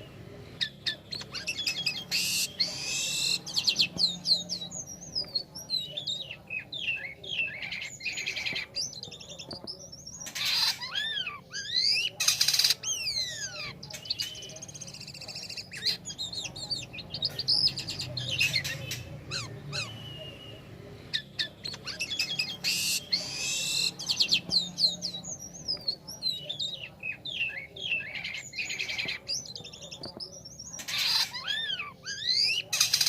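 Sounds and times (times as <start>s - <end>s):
starling singing chattering song: 0.0s - 33.0s.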